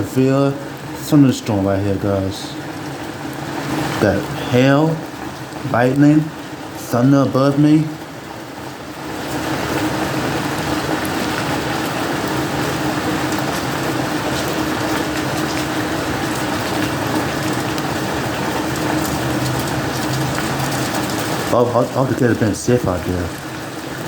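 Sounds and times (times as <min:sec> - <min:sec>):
heavy rain and hail: 0:00.0 - 0:24.0.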